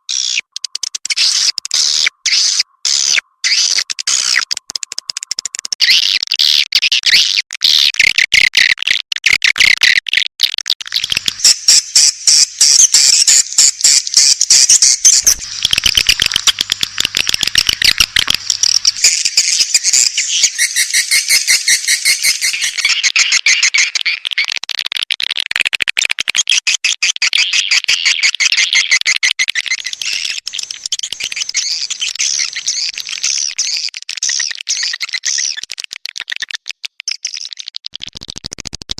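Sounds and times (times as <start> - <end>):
swiftlet chirps and clicking trills: 10.8 - 23.9, 29.6 - 33.8.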